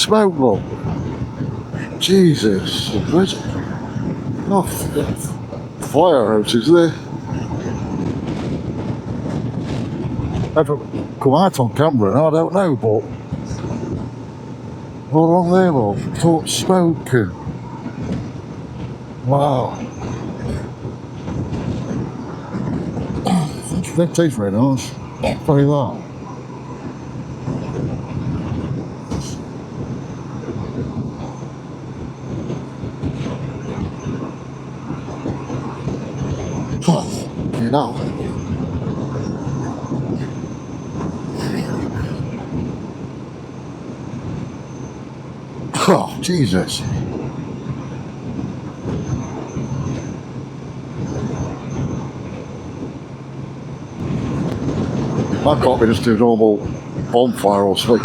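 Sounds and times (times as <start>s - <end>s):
wind noise: 0.0s - 45.6s
rumbling noise: 0.0s - 47.3s
motorcycle engine cruising: 0.0s - 50.3s.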